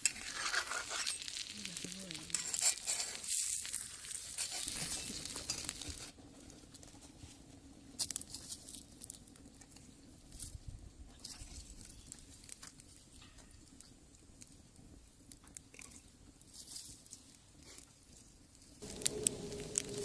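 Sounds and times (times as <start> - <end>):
food sizzling in a skillet: 0.0 - 6.1, 18.8 - 20.0
faint crackles and clicks: 0.0 - 20.0.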